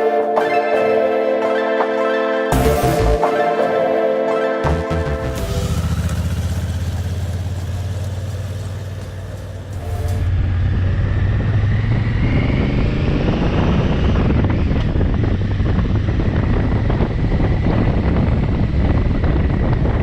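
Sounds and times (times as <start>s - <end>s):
motorcycle engine running: 4.7s - 20.0s
wind rumble on microphone: 7.4s - 20.0s.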